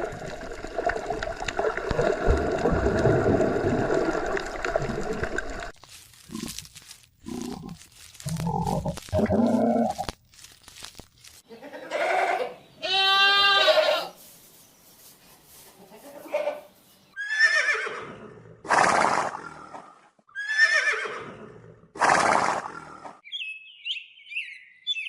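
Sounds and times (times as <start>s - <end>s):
livestock bleating: 11.5s - 14.2s, 15.8s - 16.7s.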